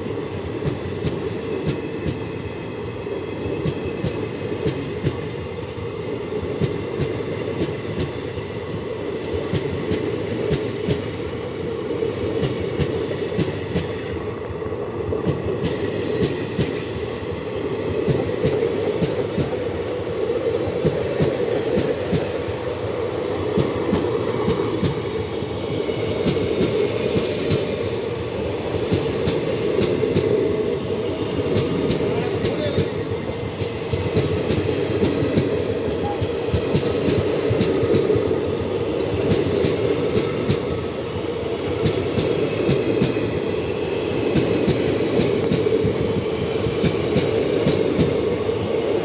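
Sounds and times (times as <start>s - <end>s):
train wheels rumbling: 0.0s - 49.0s
rail clicks and rattles: 3.4s - 5.5s, 6.4s - 8.6s, 15.2s - 20.0s, 20.6s - 49.0s.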